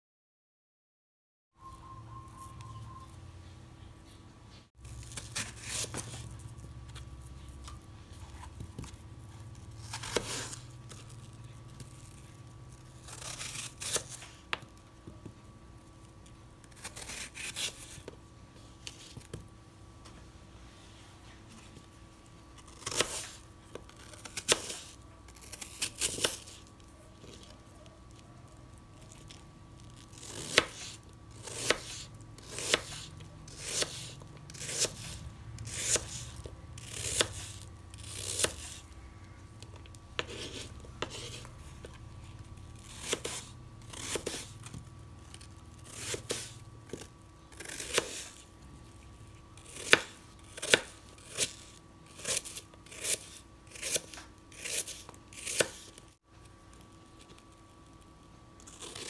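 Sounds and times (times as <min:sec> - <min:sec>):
knife slicing apple on board: 0:30.2 - 0:38.8, 0:40.2 - 0:42.0, 0:42.8 - 0:44.8, 0:49.7 - 0:56.0.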